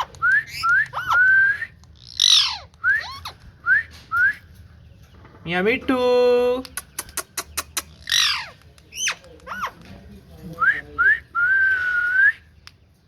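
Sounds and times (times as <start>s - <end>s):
parrot squawk: 0.0s - 1.4s, 2.0s - 3.4s, 8.0s - 9.8s
parrot calling: 0.0s - 3.5s, 6.7s - 9.9s
parrot whistles: 0.0s - 4.4s
parrot clicks: 6.6s - 9.9s.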